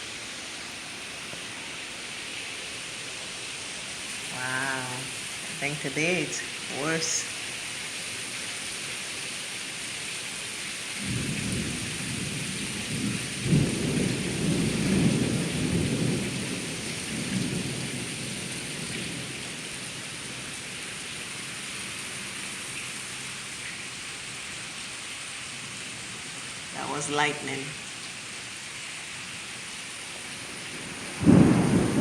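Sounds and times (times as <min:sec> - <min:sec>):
heavy rain hissing: 0:00.0 - 0:32.0
rolling thunder rumble: 0:11.0 - 0:19.3, 0:30.7 - 0:32.0.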